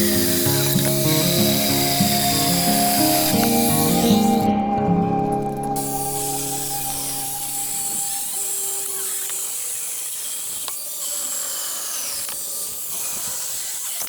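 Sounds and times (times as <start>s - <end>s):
chainsaw cutting wood: 0.0s - 4.6s
background music: 0.0s - 9.2s.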